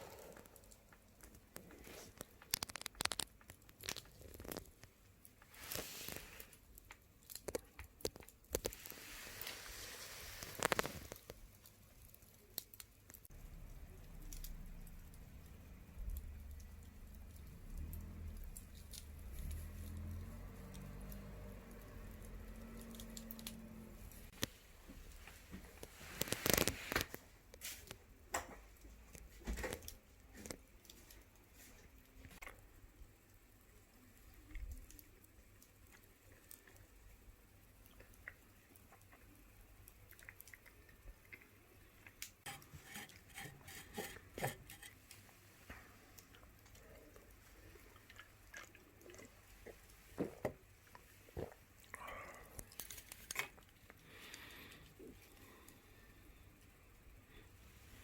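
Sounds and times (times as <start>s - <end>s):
wood campfire crackling: 0.0s - 28.0s
wood fire crackling: 0.0s - 58.0s.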